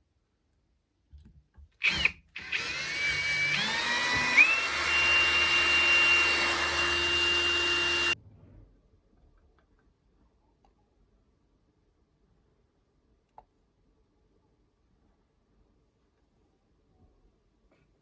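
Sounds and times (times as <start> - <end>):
power tool motor running: 1.8 - 8.2.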